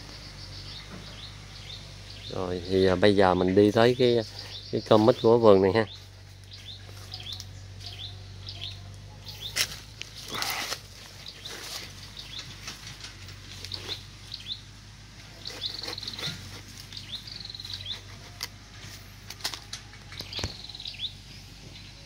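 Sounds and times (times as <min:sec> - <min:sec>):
small birds chirping and trilling: 0:00.0 - 0:22.0
knife cutting fruit rind: 0:15.2 - 0:18.6.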